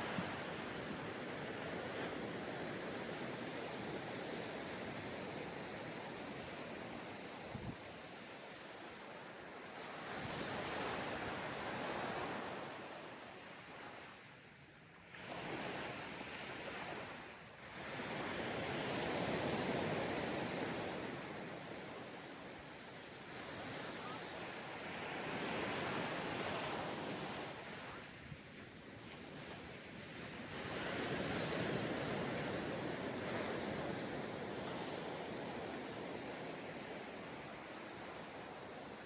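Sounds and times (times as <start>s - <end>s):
waves breaking on a beach: 0.0s - 39.0s
wind on microphone: 7.3s - 7.9s.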